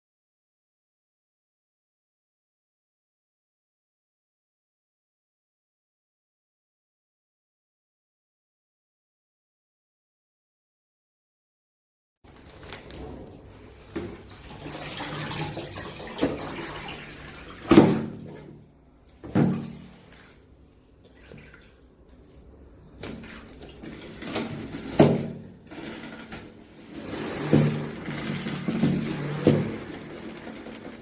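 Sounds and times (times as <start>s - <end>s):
water sloshing in bucket: 12.3s - 31.0s
loud splashes or knocks: 14.0s - 18.6s, 19.2s - 20.3s.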